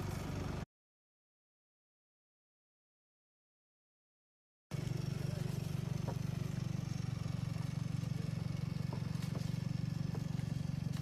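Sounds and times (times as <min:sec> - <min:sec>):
engine idling: 0:00.0 - 0:00.6, 0:04.7 - 0:11.0.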